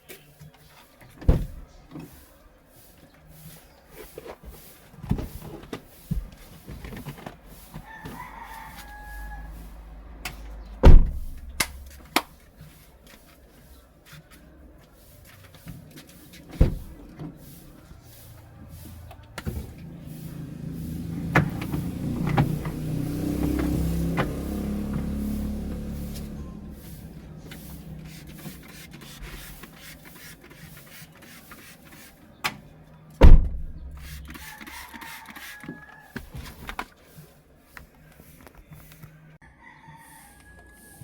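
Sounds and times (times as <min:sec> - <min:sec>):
rooster crowing: 0:07.7 - 0:10.1, 0:34.4 - 0:36.5, 0:39.4 - 0:41.0.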